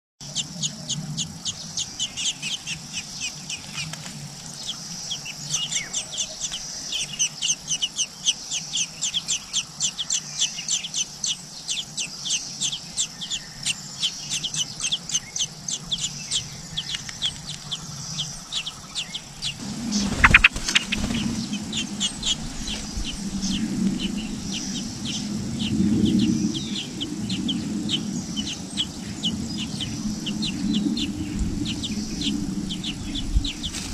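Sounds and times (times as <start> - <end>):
birds chirping: 0.2 - 33.9
low hum: 19.4 - 33.9.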